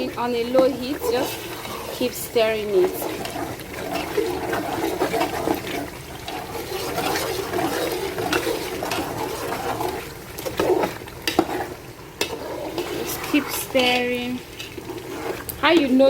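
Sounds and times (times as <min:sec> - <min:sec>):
paste frying and sloshing in pot: 0:00.0 - 0:16.0.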